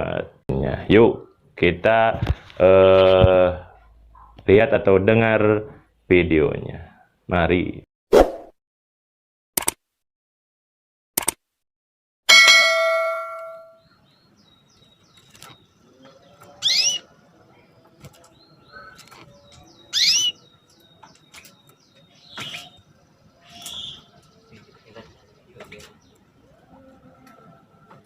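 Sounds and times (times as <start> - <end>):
short clicks: 9.6 - 9.8, 11.2 - 11.4
bell-like chime: 12.3 - 13.8
canary call notes: 16.6 - 17.1, 19.9 - 20.5.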